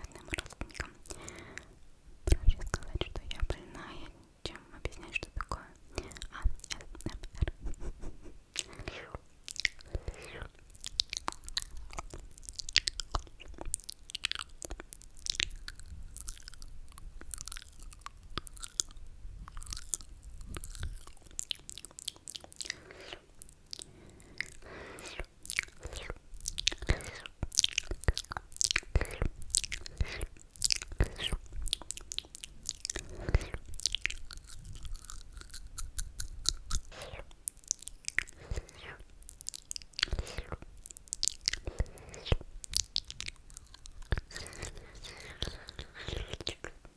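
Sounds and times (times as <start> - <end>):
wet mouth clicks and smacks: 4.9 - 46.9
mouth slurps: 7.4 - 9.2, 36.8 - 37.3, 40.0 - 40.6, 41.4 - 42.4.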